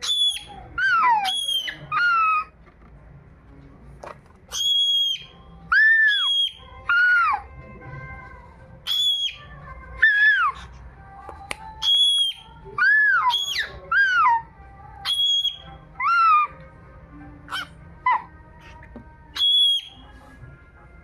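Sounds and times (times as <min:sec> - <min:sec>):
cockatiel whistling: 0:00.0 - 0:02.5, 0:04.5 - 0:07.4, 0:08.8 - 0:10.6, 0:11.8 - 0:14.4, 0:15.0 - 0:16.5, 0:19.3 - 0:20.1.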